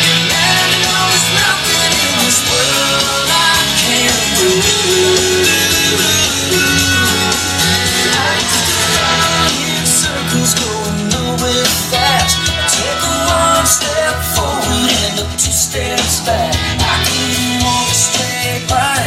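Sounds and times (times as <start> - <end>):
guitar rock music: 0.0 - 19.0
person singing: 0.0 - 19.0.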